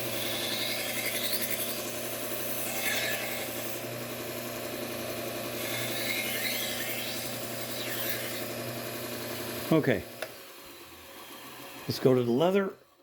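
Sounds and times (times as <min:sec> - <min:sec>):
blade scraping on abrasive belt: 0:00.0 - 0:03.8, 0:05.6 - 0:08.5
belt grinder humming: 0:00.0 - 0:11.9.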